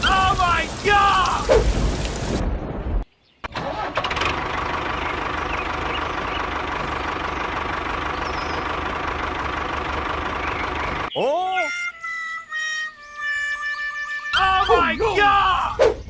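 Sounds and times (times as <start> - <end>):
engine starting and idling: 3.4 - 11.1.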